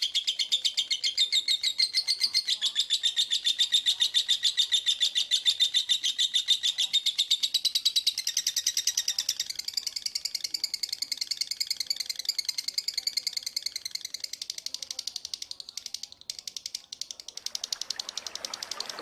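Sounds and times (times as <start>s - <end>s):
songbird chirping rapidly: 0.0s - 19.0s.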